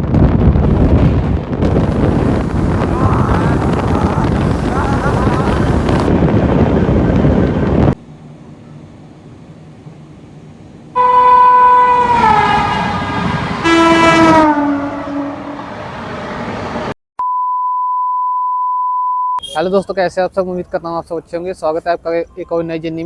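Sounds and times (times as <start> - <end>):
low rumble: 0.0 - 8.0
locomotive horn blasts: 11.0 - 16.0, 19.4 - 19.8
electronic beep tone: 17.2 - 19.7.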